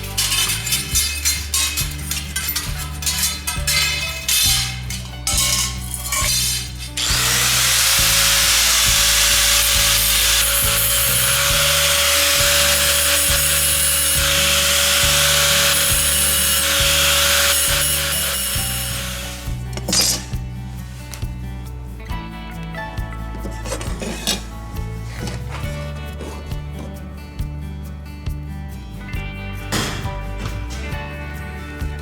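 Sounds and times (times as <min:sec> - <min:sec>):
electric power tool grinding: 0:00.0 - 0:20.3
background music: 0:00.0 - 0:32.0.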